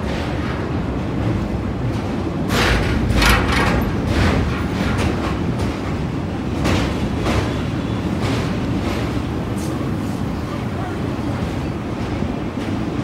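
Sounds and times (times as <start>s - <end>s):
train wheels rumbling on rail: 0.0s - 13.0s
wheels clattering: 1.3s - 9.5s.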